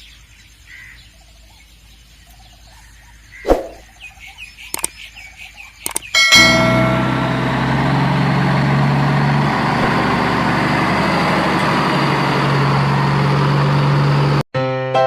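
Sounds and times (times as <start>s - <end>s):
truck engine rumbling: 5.9s - 14.4s.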